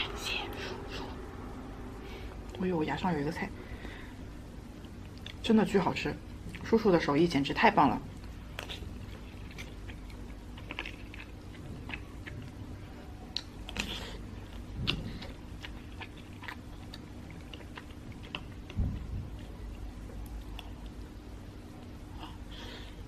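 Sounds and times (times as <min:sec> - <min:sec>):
faint steady hum: 0:00.0 - 0:23.0
person chewing: 0:08.2 - 0:21.0.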